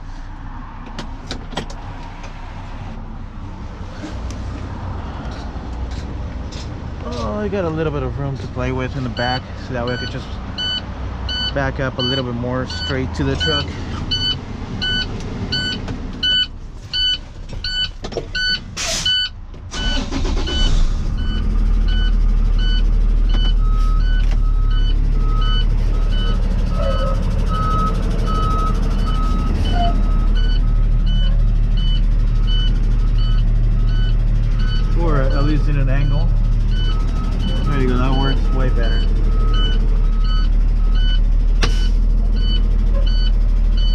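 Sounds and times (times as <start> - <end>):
truck engine rumbling: 0.0 - 43.9
reversing alarm beeping: 9.2 - 43.9.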